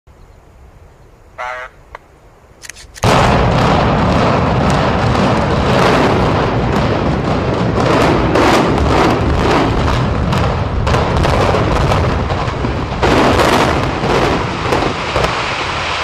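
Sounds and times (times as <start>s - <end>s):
deep rumble: 3.0s - 16.0s
explosive cracks barrage: 3.0s - 16.0s.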